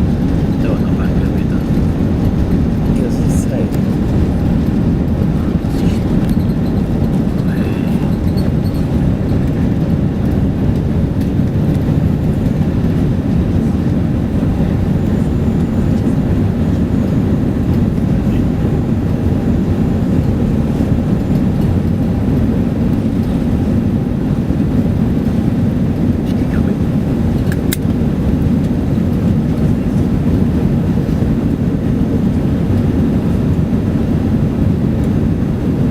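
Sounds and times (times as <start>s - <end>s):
jet engines roaring at takeoff: 0.0s - 35.9s.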